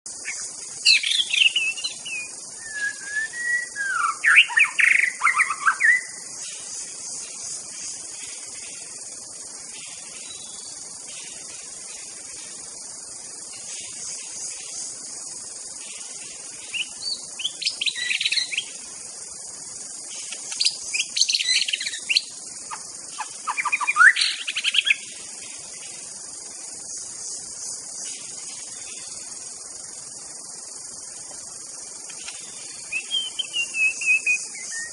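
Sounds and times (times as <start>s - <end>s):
high drone of insects: 0.1s - 34.9s
bird whistling phrases: 1.2s - 6.1s, 33.0s - 34.9s.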